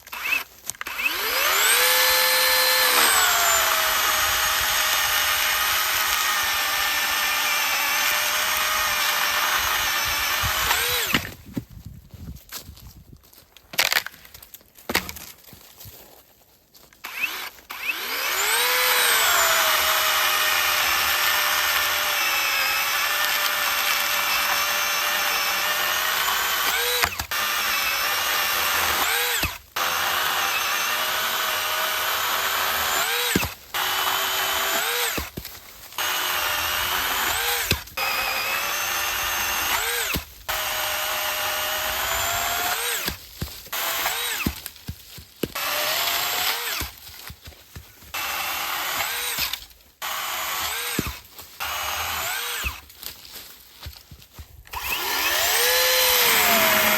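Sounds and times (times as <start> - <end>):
cordless saw motor whine: 0.1 - 11.2, 17.1 - 35.2, 36.0 - 43.1, 54.7 - 56.9
saw motor winding down and up: 0.1 - 11.2, 17.1 - 35.3, 36.0 - 43.2, 43.8 - 44.5, 45.6 - 46.9, 48.1 - 52.8, 54.7 - 56.9.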